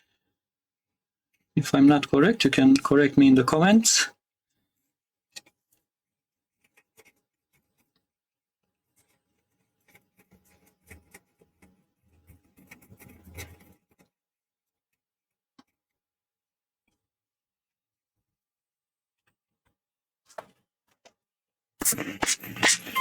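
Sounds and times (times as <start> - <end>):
scratchy rubbing: 21.8 - 23.0.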